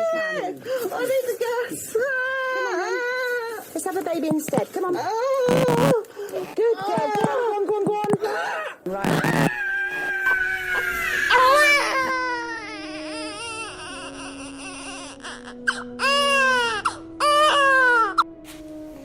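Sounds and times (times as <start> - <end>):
newborn baby crying: 8.2 - 18.3.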